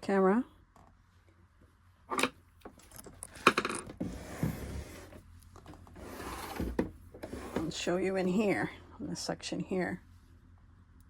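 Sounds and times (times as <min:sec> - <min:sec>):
rubbing and scraping: 0:03.3 - 0:08.6.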